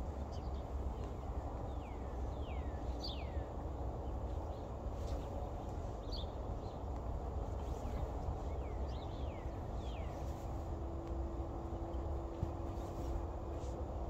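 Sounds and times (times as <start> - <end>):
birds chirping: 0.2 - 6.8, 7.6 - 10.5.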